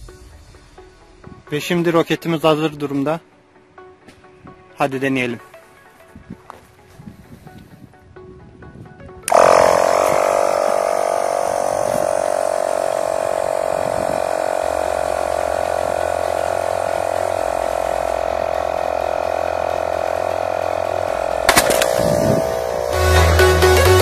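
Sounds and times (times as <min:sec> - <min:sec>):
air compressor rattling buzz: 0:09.3 - 0:24.0
bottle rocket bursting off: 0:21.4 - 0:22.5.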